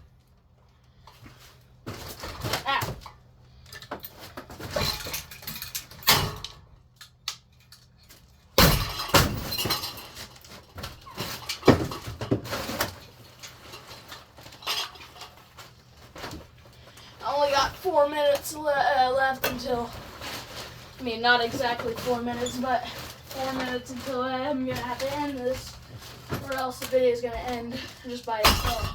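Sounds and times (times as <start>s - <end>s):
pieces rattling and clattering: 3.7s - 6.6s, 7.5s - 16.6s, 19.4s - 28.9s.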